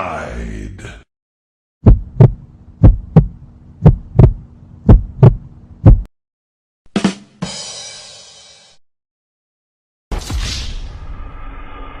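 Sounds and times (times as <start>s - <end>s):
heartbeat thumps: 1.8s - 6.1s.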